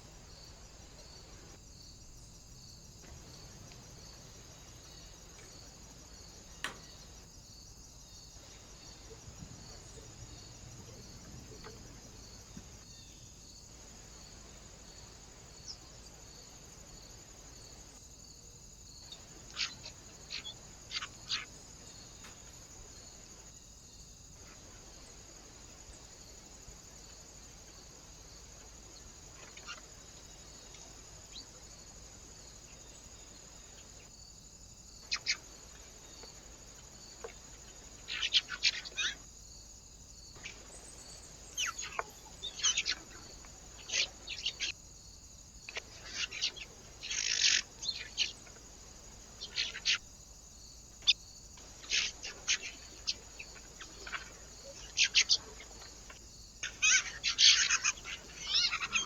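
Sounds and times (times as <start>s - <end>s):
faint steady hiss: 0.0s - 59.0s
small birds chirping: 2.2s - 7.3s, 18.9s - 23.5s, 25.8s - 34.3s, 34.9s - 39.3s, 40.2s - 59.0s.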